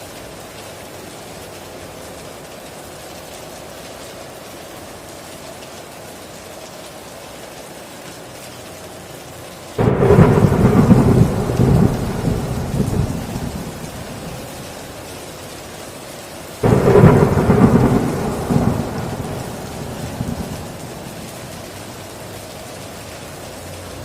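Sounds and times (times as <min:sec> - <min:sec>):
heavy rain on a tin roof: 0:00.0 - 0:24.0
thunder rumbling: 0:09.8 - 0:15.1, 0:16.6 - 0:22.2.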